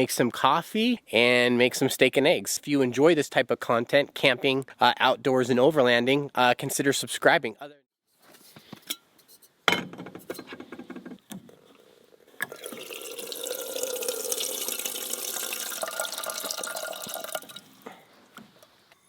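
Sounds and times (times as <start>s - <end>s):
water pouring into a container: 12.4s - 17.8s.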